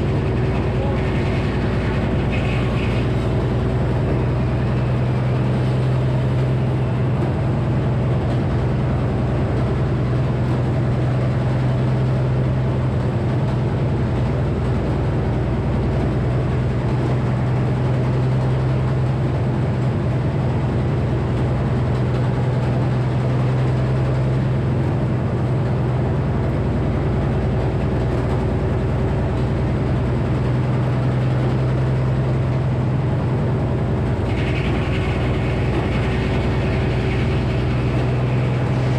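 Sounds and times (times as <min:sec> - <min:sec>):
circular saw running: 0:00.0 - 0:05.4, 0:34.0 - 0:38.9.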